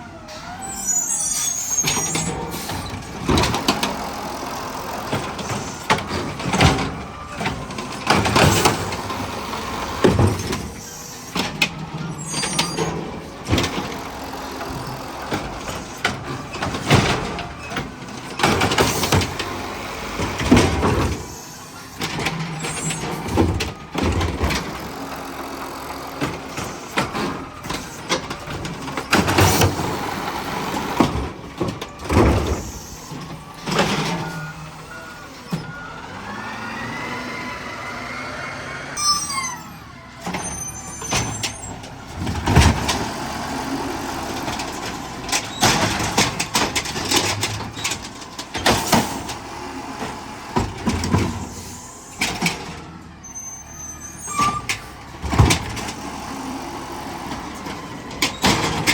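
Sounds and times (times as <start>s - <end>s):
diesel engine running: 0.0s - 58.9s
hydraulic whine: 32.0s - 43.4s.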